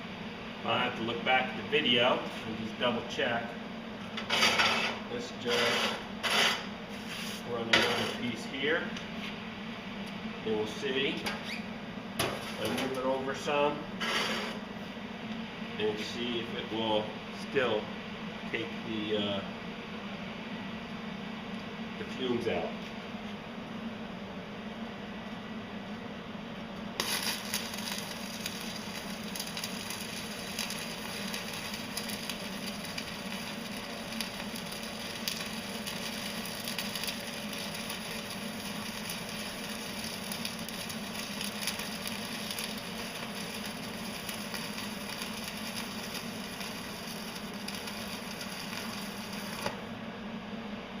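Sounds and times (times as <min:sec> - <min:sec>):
extractor fan humming: 0:00.0 - 0:51.0
welding arc crackling: 0:27.0 - 0:50.0.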